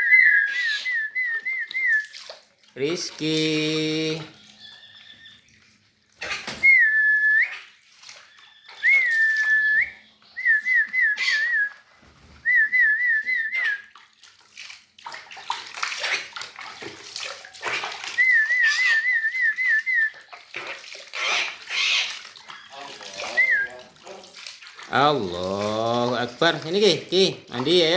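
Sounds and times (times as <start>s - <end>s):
person whistling trills: 0.0s - 2.1s, 6.6s - 7.5s, 8.8s - 11.7s, 12.4s - 13.8s, 18.2s - 20.2s, 23.3s - 23.8s
water splashing: 0.0s - 27.9s.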